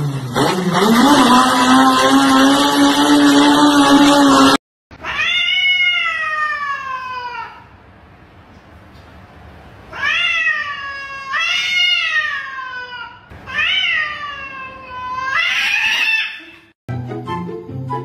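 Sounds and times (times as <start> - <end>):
cat yowling: 5.0 - 7.7, 9.9 - 16.7
music: 16.9 - 18.0.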